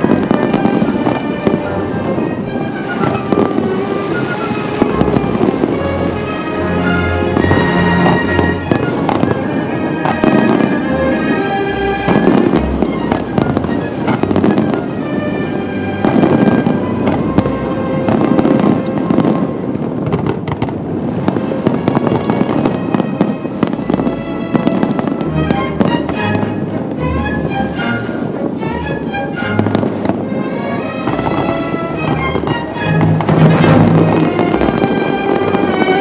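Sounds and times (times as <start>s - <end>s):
music playing: 0.0s - 20.0s, 21.0s - 36.0s
fireworks bursting and crackling: 0.0s - 36.0s.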